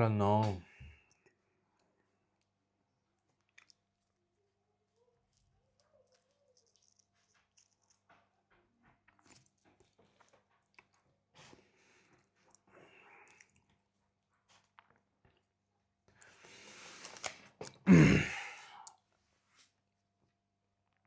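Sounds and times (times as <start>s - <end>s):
person chewing: 3.3s - 4.1s, 5.3s - 8.0s, 9.1s - 11.0s.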